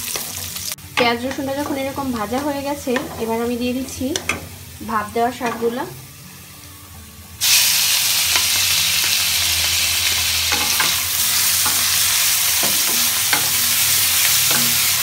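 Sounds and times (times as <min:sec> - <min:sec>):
hot oil sizzling: 0:00.0 - 0:15.0.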